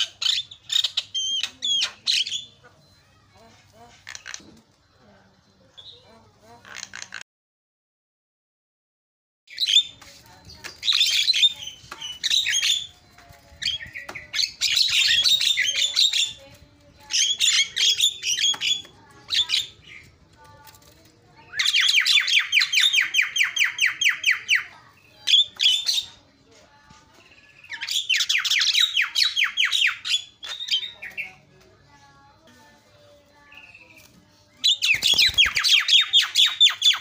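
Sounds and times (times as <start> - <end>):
bird chirps whistles and squawks: 0.0 - 3.0, 21.5 - 26.1, 27.3 - 31.4, 34.6 - 37.0.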